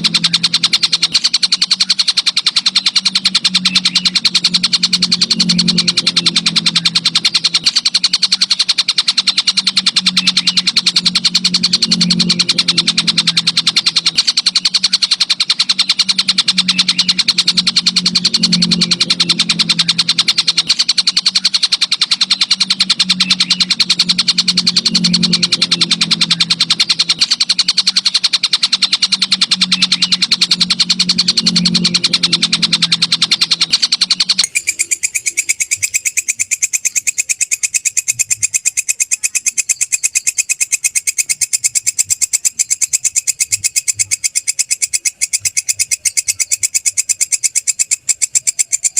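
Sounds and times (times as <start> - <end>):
rapid high bird chirps: 0.0 - 48.9.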